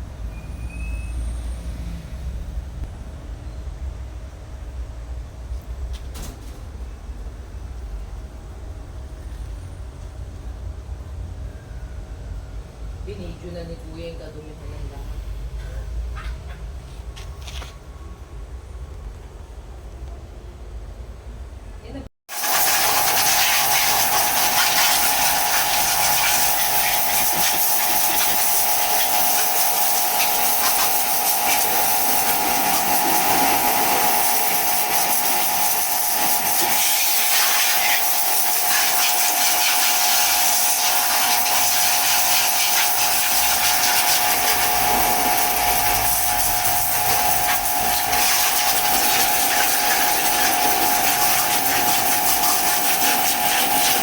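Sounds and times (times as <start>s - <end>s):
water spraying hiss: 22.3s - 54.0s
mid-pitched whine: 23.9s - 54.0s.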